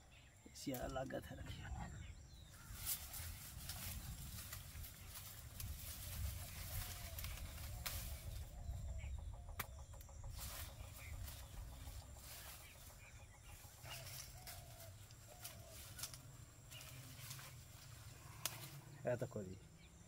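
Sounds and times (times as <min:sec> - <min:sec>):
plants rustling and clicking: 0:00.6 - 0:01.3, 0:02.6 - 0:08.6, 0:10.3 - 0:19.3.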